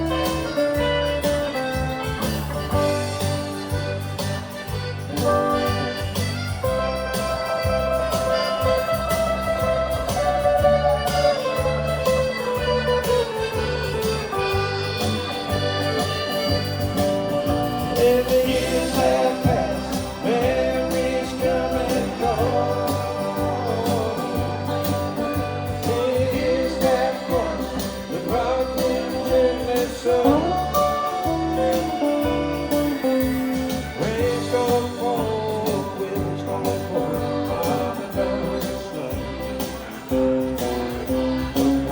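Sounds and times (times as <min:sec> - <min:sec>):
band accompaniment: 0:00.0 - 0:41.9
person singing long notes: 0:15.0 - 0:32.7.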